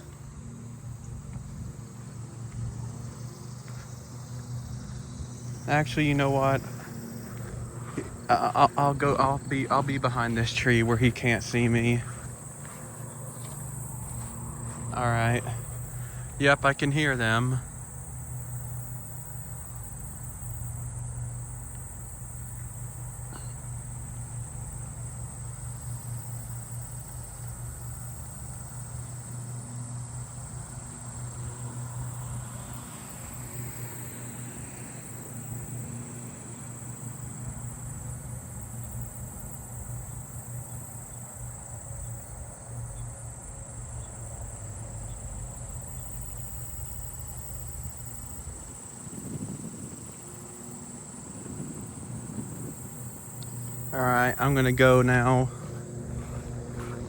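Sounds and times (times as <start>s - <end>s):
lawn mower engine running: 0.0s - 18.2s, 48.5s - 57.0s
insect chorus: 0.0s - 57.0s.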